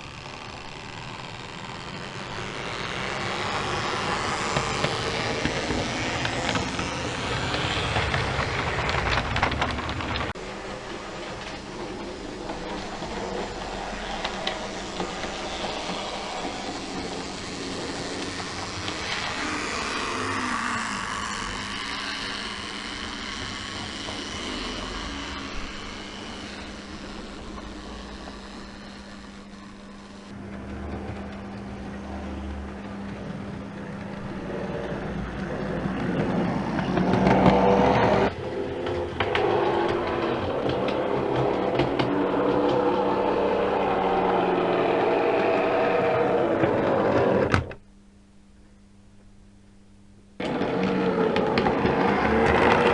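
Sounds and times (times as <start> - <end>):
train running on track: 0.0 - 47.5, 50.4 - 52.9.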